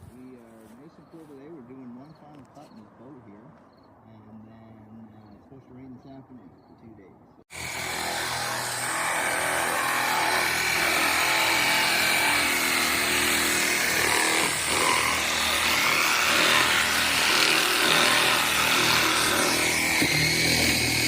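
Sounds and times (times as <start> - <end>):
power saw cutting boat hull: 7.5 - 21.0.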